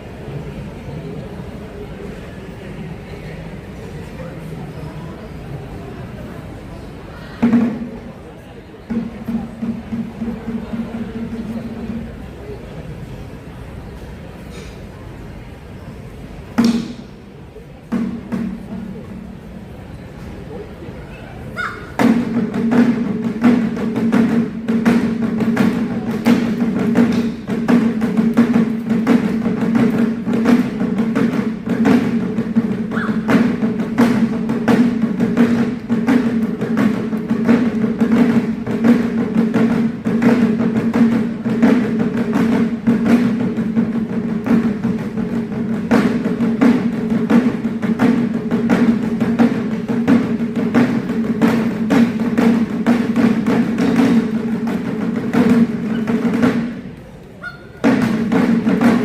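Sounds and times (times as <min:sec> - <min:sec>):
taiko drums: 0:07.4 - 0:08.0, 0:08.9 - 0:12.2, 0:16.6 - 0:17.2, 0:17.9 - 0:19.2, 0:21.6 - 0:59.0.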